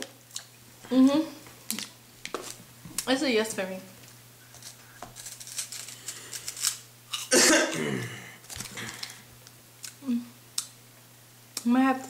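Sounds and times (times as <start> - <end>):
crunchy snack crackling: 4.5 - 7.4
person coughing: 7.3 - 8.9.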